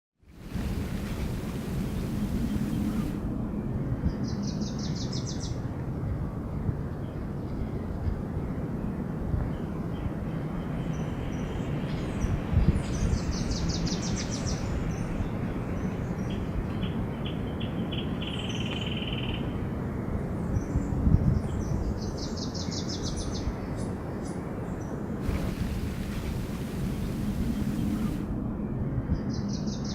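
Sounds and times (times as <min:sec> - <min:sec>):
steady low background noise: 0:00.2 - 0:29.9
low buzzing bird trill: 0:00.4 - 0:05.6, 0:22.0 - 0:29.9
small birds singing high trills: 0:20.5 - 0:28.2.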